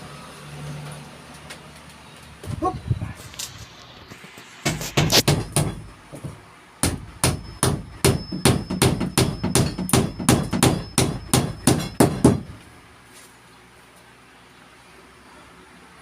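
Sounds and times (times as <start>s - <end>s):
hammer hitting nail into wood: 4.6s - 12.6s.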